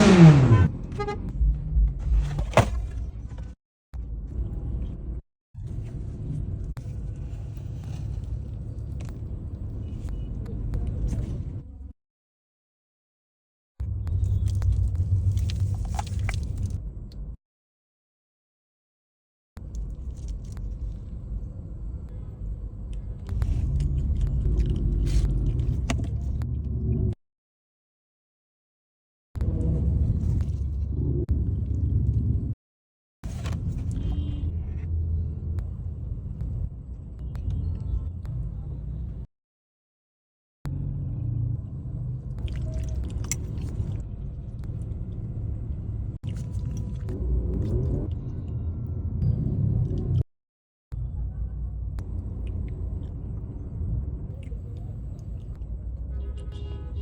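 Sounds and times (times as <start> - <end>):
crisp crackles and clicks: 14.1 - 17.2
low steady rumble: 19.6 - 27.2, 40.7 - 50.2, 51.0 - 56.9.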